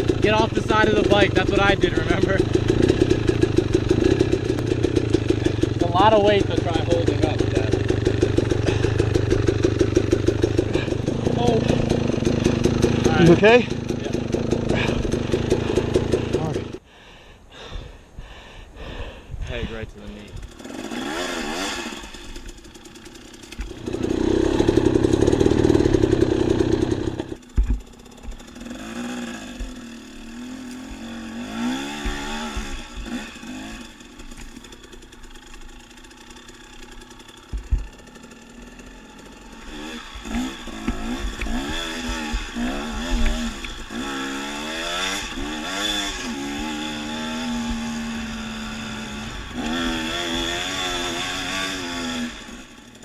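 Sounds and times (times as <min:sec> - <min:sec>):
dirt bike engine revving: 0:00.0 - 0:16.8, 0:20.0 - 0:53.0
sharp knocks: 0:37.5 - 0:38.0.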